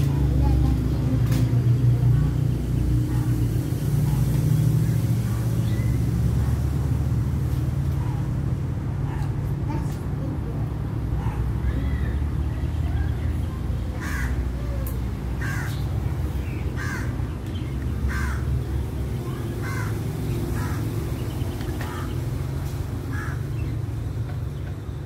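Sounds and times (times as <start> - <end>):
bird calling: 11.2 - 24.8.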